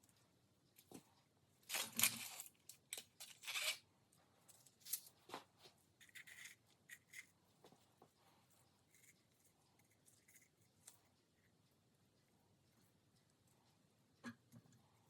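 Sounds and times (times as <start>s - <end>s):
paper tearing or crinkling: 1.7s - 2.5s.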